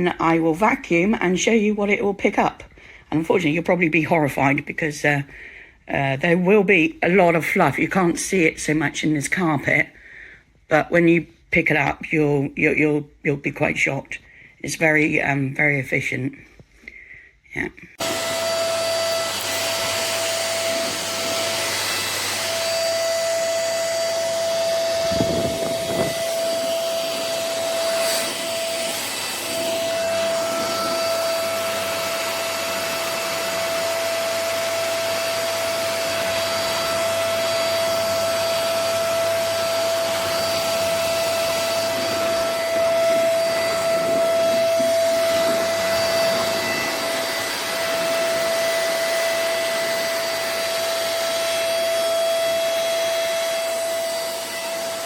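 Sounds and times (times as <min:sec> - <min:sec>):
vacuum cleaner motor whine: 0:18.0 - 0:55.0.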